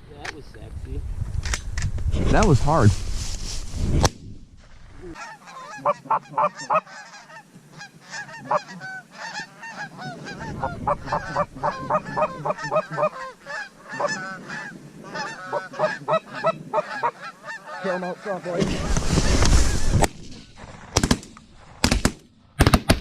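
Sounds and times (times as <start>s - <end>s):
geese honking: 5.2s - 19.9s.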